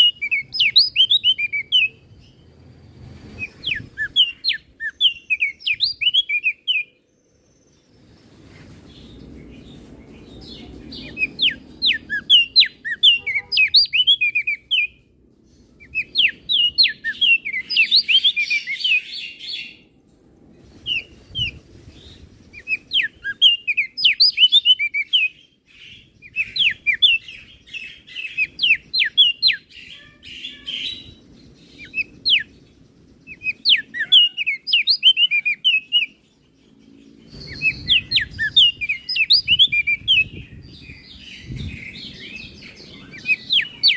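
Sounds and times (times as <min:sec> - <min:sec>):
bird singing chirps and whistles: 0:00.0 - 0:02.4, 0:03.3 - 0:07.9, 0:10.3 - 0:15.0, 0:15.8 - 0:19.8, 0:20.8 - 0:32.6, 0:33.2 - 0:36.3, 0:37.2 - 0:43.9.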